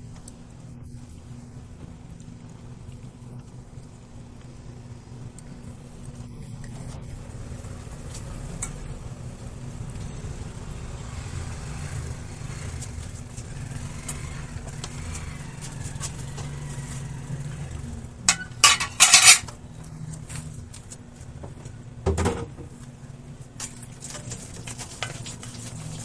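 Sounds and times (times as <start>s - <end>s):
utensil clattering against pot: 18.3s - 19.5s.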